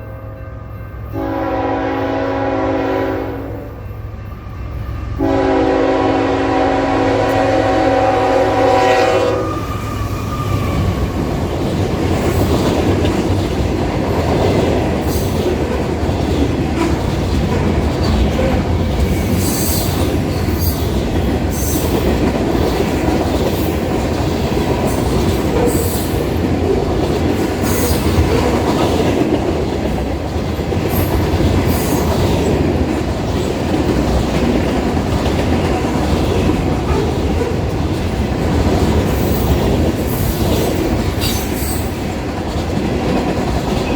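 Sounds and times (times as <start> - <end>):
freight train rumble: 0.0 - 43.9
wheels clacking over rail joints: 10.5 - 43.9.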